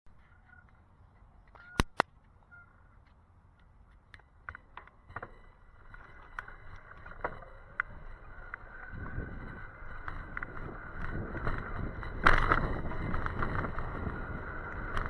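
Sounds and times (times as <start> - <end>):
sharp clicks: 1.5 - 2.1.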